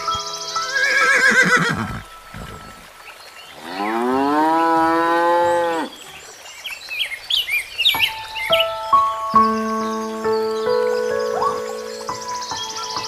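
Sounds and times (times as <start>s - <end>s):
horse whinny: 0.7s - 2.0s
cow mooing: 3.6s - 5.9s.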